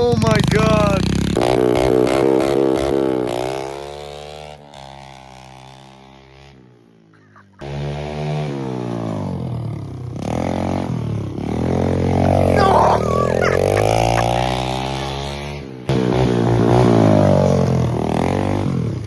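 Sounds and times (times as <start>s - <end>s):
pit bike engine revving: 10.2s - 19.0s.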